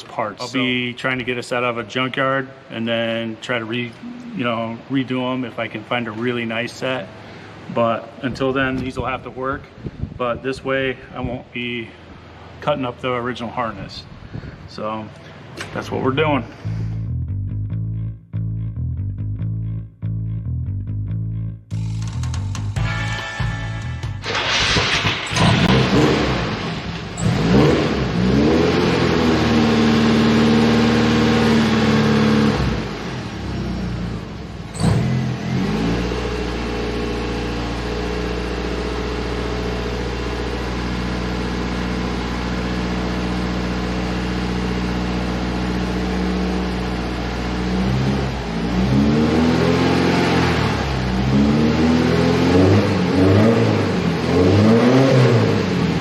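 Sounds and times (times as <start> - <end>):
car engine revving and idling: 24.2 - 56.0.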